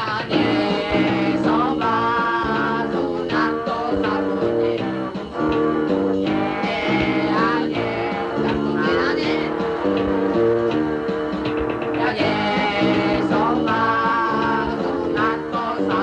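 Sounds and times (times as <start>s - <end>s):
bass guitar: 0.0s - 16.0s
electric guitar lines: 0.0s - 16.0s
punk rock band playing: 0.0s - 16.0s.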